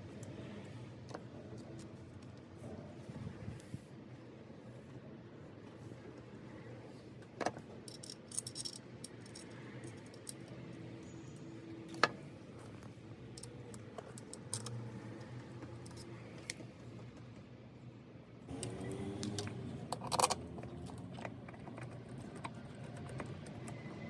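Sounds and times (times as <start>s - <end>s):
small metal tools clinking: 7.9s - 11.5s.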